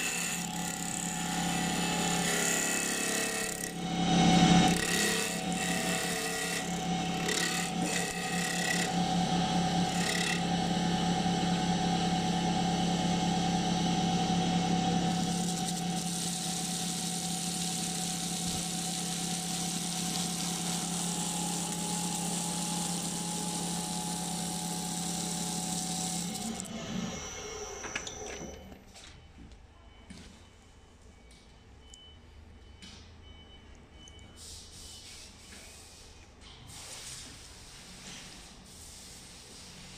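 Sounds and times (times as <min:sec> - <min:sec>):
tool scraping spinning wood: 0:00.0 - 0:11.3, 0:14.8 - 0:27.2
lathe motor humming: 0:00.0 - 0:28.2.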